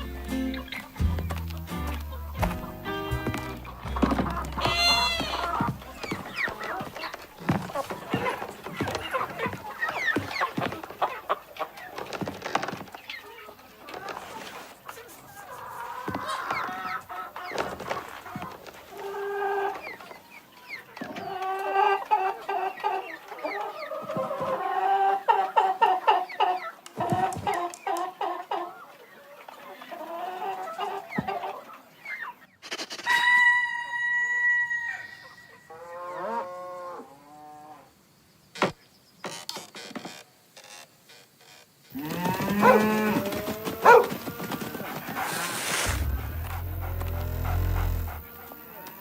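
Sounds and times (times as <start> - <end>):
chickens clucking: 0.0 - 34.2, 41.9 - 49.0
rooster crowing: 4.6 - 5.8, 33.1 - 35.2, 42.0 - 44.7.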